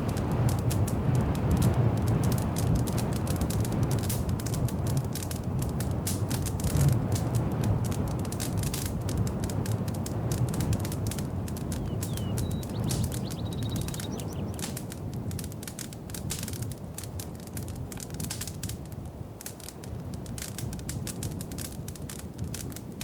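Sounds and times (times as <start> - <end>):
wood fire crackling: 0.0 - 23.0
faint high chirps: 11.8 - 14.6.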